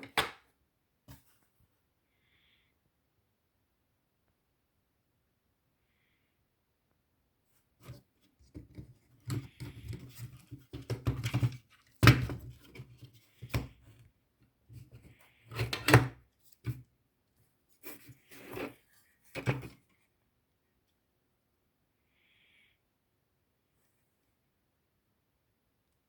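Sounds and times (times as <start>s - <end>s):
handling small plastic parts: 7.8s - 14.0s.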